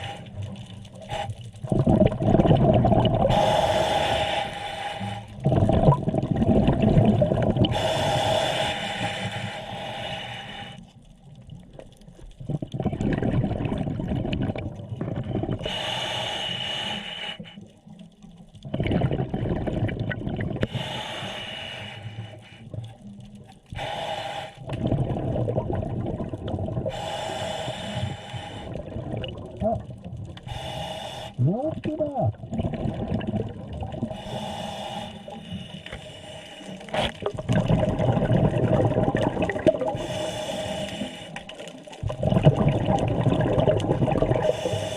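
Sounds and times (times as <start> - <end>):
diver breathing through regulator: 0.0 - 2.1, 3.2 - 5.7, 7.6 - 11.0, 15.6 - 17.7, 20.6 - 22.8, 23.7 - 24.9, 26.8 - 28.9, 30.4 - 31.4, 34.0 - 38.0, 39.8 - 41.8, 44.2 - 44.9
bubbles gurgling underwater: 0.0 - 3.5, 5.4 - 7.8, 11.4 - 15.7, 18.5 - 20.8, 24.6 - 27.1, 28.7 - 30.5, 31.4 - 34.3, 36.8 - 40.4, 41.4 - 44.9.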